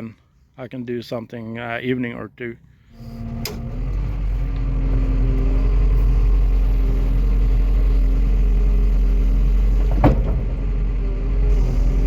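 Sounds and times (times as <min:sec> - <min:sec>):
engine running with low hum: 0:02.6 - 0:12.0.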